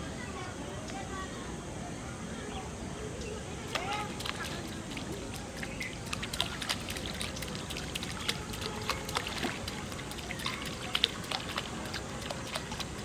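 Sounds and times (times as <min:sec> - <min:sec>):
water trickling and splashing: 0:03.7 - 0:13.0.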